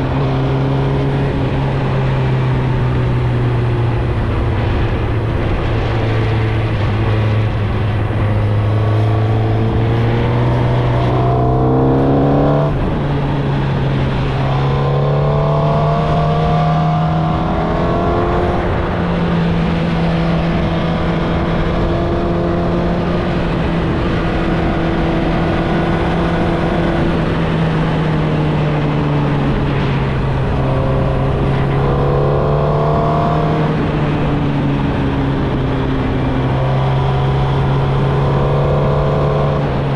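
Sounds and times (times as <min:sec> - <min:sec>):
motorcycle engine accelerating: 0:00.0 - 0:39.9
steady rushing noise: 0:00.0 - 0:39.9.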